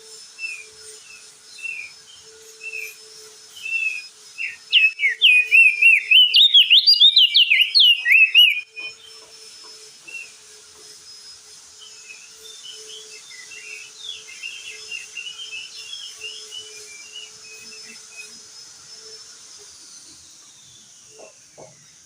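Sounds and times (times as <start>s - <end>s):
bird singing chattering notes: 4.4s - 9.2s.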